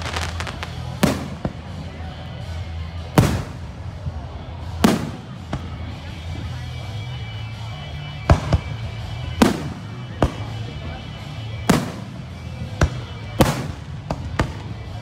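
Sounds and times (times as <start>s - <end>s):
fireworks bangs: 0.0s - 2.0s, 3.2s - 3.8s.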